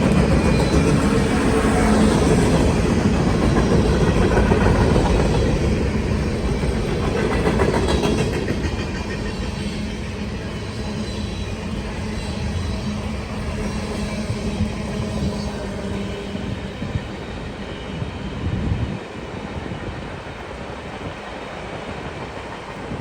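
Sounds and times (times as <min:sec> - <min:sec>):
train wheels clattering over rails: 0:00.0 - 0:18.4.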